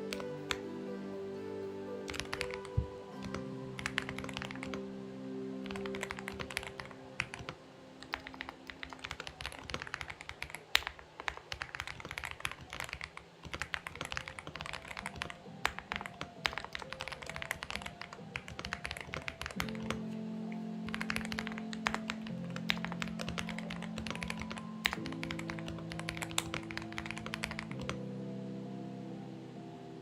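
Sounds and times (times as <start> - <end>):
soft background music: 0.0 - 30.0
mechanical keyboard key clicks: 5.6 - 20.0, 20.8 - 28.0.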